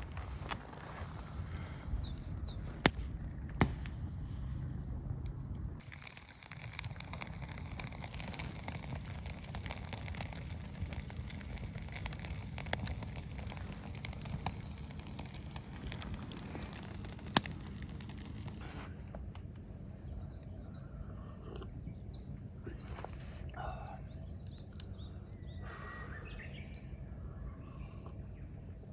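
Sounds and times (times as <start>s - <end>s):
fire sharp pops: 0.0s - 18.8s
campfire crackling: 0.0s - 21.0s, 22.3s - 27.5s.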